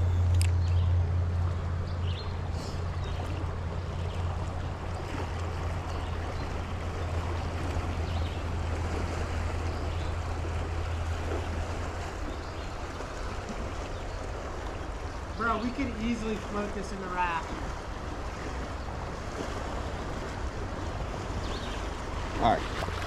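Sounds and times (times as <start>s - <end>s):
creek water rushing: 0.0s - 23.0s
low hum: 0.0s - 23.0s.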